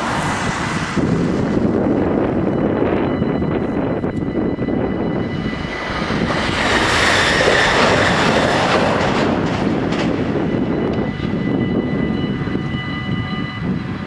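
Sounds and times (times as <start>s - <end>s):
electric train passing: 0.0s - 14.0s
wheels clicking over rails: 5.7s - 11.4s.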